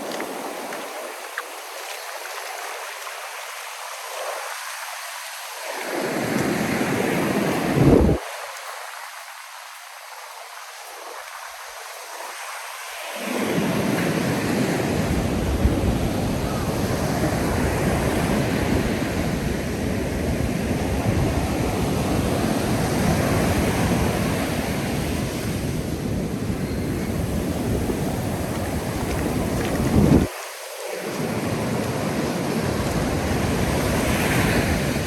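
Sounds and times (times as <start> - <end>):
ocean surf washing onto beach: 0.0 - 35.0
wind rumbling on microphone: 5.8 - 8.3, 13.3 - 35.0.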